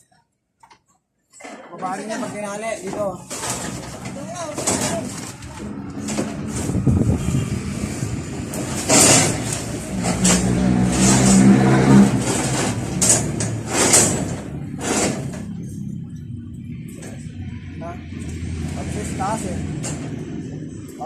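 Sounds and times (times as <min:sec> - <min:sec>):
vehicle engine running: 0:05.3 - 0:21.0.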